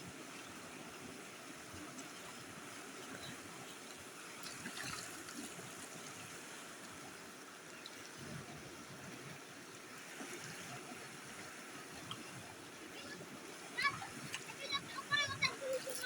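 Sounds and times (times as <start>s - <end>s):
faint water trickling: 0.1s - 16.0s.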